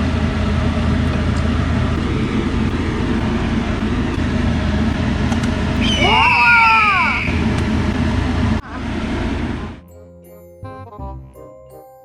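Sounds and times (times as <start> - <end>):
low hum: 0.0 - 9.8
steady rushing noise: 0.1 - 9.8.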